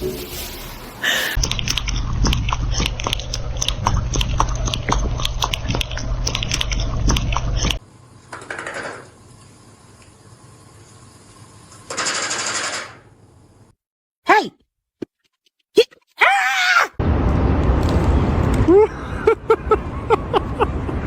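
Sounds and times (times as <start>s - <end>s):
cat chewing and crunching: 1.4s - 7.8s.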